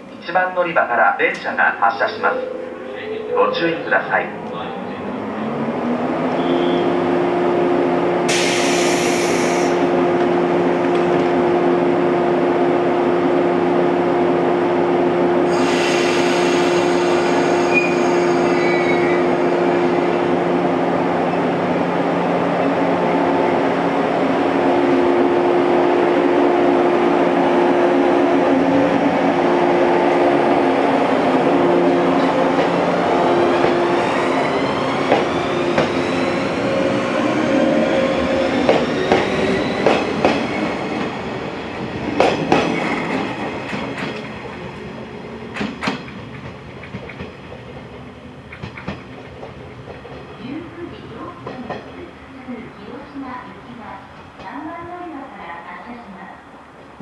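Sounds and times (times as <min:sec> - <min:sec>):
electric train hum: 0:00.0 - 0:55.0
train pulling away: 0:08.2 - 0:10.6, 0:15.4 - 0:20.4, 0:24.2 - 0:51.7
air hiss bursts: 0:08.3 - 0:09.8.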